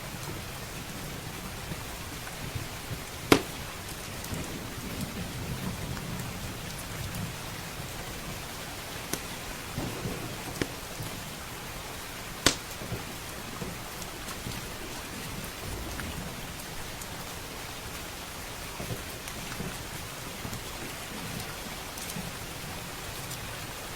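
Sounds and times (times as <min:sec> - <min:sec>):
heavy rain: 0:00.0 - 0:23.9
wood fire crackling and popping: 0:02.2 - 0:07.3, 0:09.1 - 0:17.2
low rolling thunder: 0:02.4 - 0:08.7, 0:09.4 - 0:17.5.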